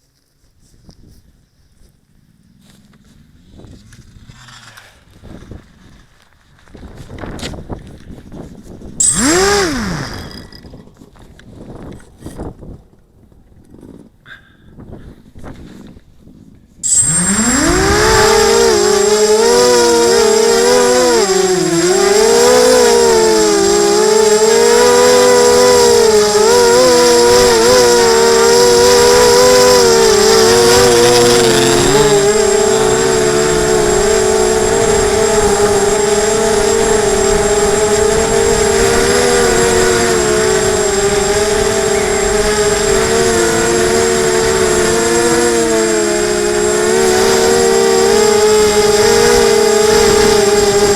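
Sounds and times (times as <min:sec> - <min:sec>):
drone motors whining: 0:09.0 - 0:10.8, 0:16.8 - 0:50.9.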